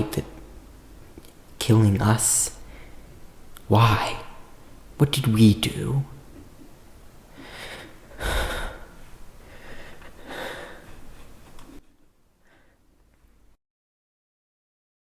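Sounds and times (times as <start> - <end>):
man breathing heavily and gasping: 7.3 - 11.4.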